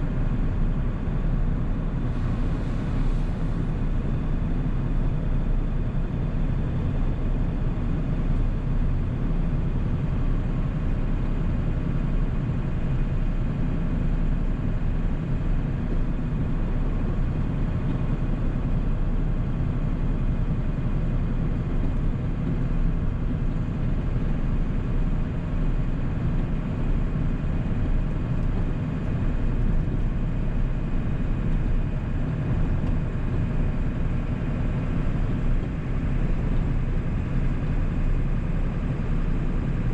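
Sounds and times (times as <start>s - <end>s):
diesel truck engine running: 0.1s - 39.9s
road noise: 2.1s - 3.9s.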